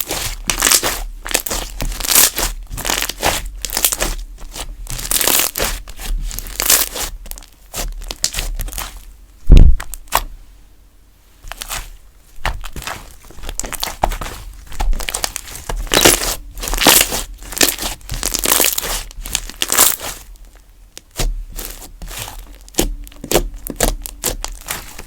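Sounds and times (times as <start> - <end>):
slime crackling and popping: 0.0 - 10.3, 11.5 - 25.0
heavy low thump: 9.4 - 9.9.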